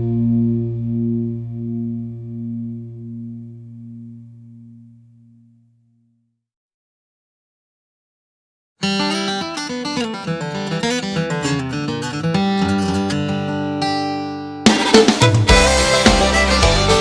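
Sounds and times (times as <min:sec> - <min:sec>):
acoustic guitar country music: 0:08.8 - 0:17.0.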